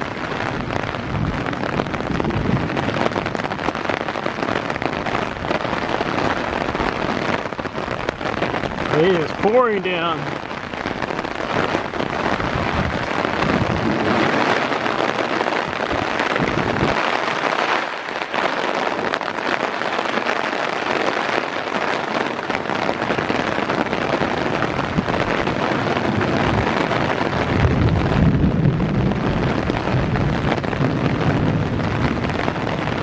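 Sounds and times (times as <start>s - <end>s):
heavy rain: 0.0s - 33.0s
raindrops pattering near microphone: 0.0s - 33.0s
wind rumble on microphone: 0.0s - 33.0s.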